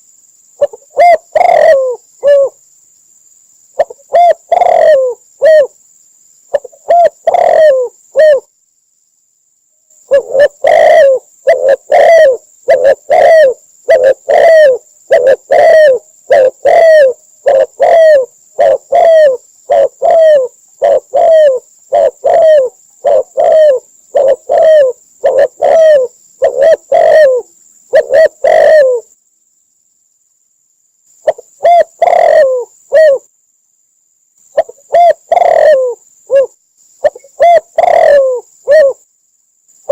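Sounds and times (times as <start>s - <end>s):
dove cooing: 0.6s - 2.6s, 3.8s - 5.8s, 6.5s - 8.5s, 10.1s - 29.1s, 31.2s - 33.3s, 34.5s - 39.0s.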